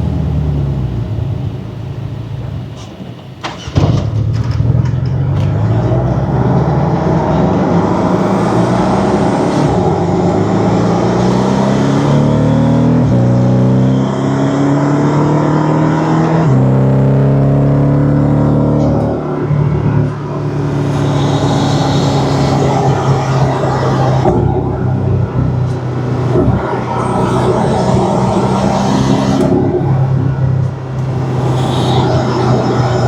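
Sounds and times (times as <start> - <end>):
car engine accelerating hard: 0.0 - 2.8, 3.4 - 33.0
sharp knocks: 3.4 - 5.9.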